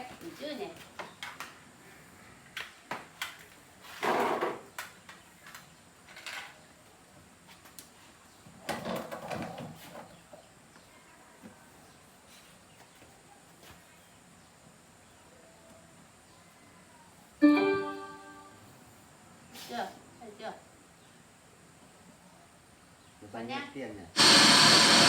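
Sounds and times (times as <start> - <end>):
long noisy sounds: 24.2 - 25.0.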